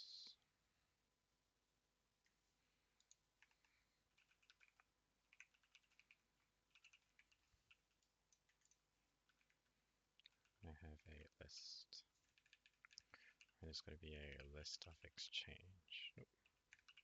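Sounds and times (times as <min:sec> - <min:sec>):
typing on a computer keyboard: 0:03.0 - 0:10.6, 0:12.2 - 0:13.6, 0:16.4 - 0:17.0.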